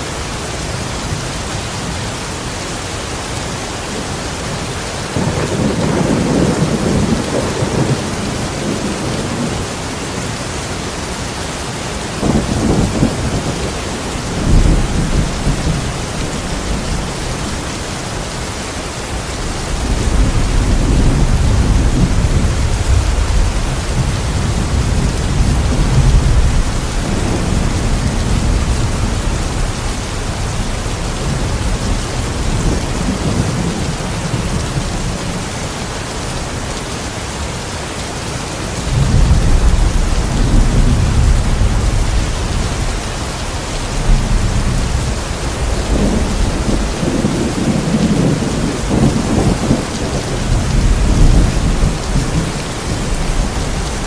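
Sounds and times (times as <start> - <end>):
heavy rain: 0.0 - 54.0
rolling thunder: 5.0 - 9.9, 12.2 - 18.3, 19.2 - 35.4, 38.8 - 54.0.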